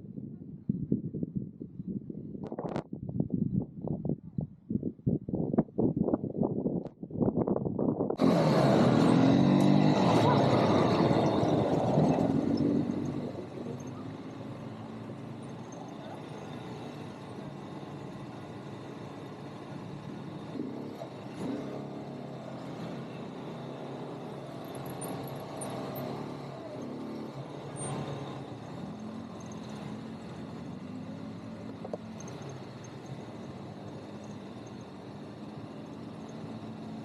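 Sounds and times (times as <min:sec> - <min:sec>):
atv engine revving: 0:08.2 - 0:37.0.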